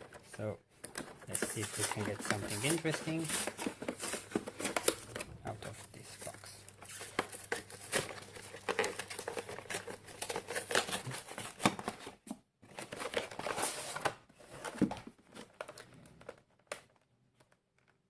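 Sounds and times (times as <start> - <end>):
plastic shrink wrap crinkling: 0.0 - 14.1.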